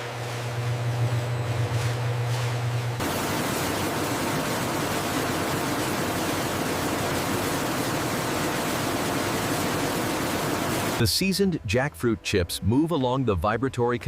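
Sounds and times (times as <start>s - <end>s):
food-processing machinery rushing: 0.0s - 11.0s.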